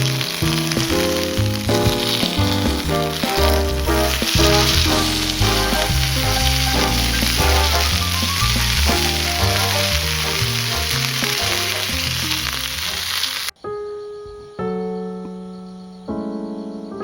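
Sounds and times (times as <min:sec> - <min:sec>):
food sizzling in a pan: 0:00.0 - 0:13.5
piano background music: 0:00.0 - 0:17.0.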